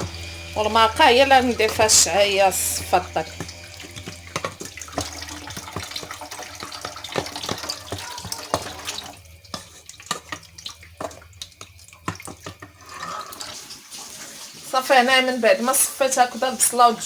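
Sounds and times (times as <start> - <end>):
utensils clinking on pot: 0.0 - 13.6
liquid splashing through strainer: 0.0 - 14.7.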